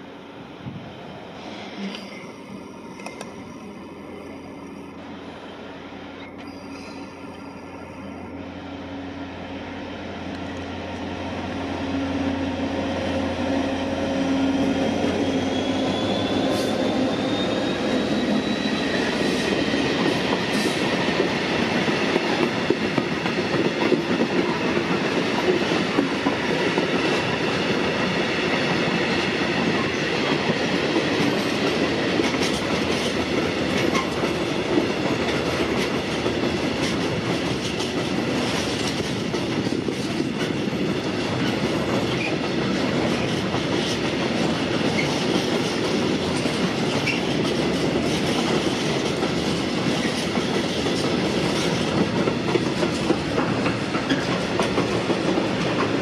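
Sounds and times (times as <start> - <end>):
high wheel squeal: 6.2 - 8.2, 14.5 - 19.4
wheels clacking on rail joints: 29.6 - 56.0.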